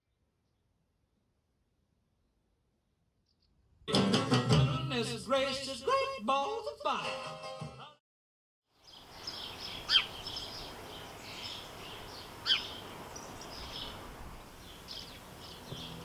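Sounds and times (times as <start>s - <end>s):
small birds chirping: 3.2s - 3.6s, 8.7s - 16.0s
downward-sweeping bird calls: 8.8s - 16.0s.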